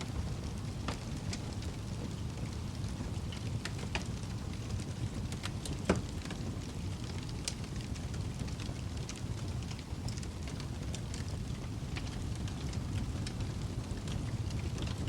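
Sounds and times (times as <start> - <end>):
fire popping: 0.0 - 15.0
wood fire crackling: 0.0 - 15.0.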